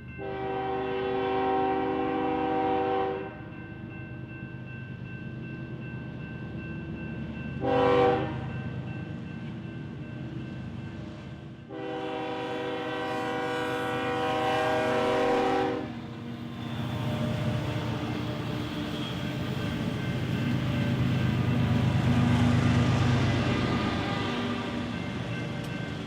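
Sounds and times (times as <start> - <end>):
locomotive air horn blasts: 0.2 - 3.4, 7.6 - 8.5, 11.7 - 16.1
locomotive engine drone: 13.9 - 26.0.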